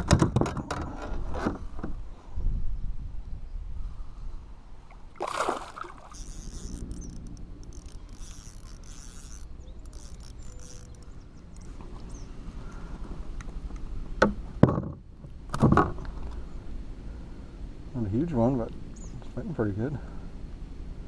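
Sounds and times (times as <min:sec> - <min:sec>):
wind rumble on microphone: 0:00.0 - 0:05.2
splash: 0:04.9 - 0:06.2
water sloshing around kayak: 0:04.9 - 0:11.8.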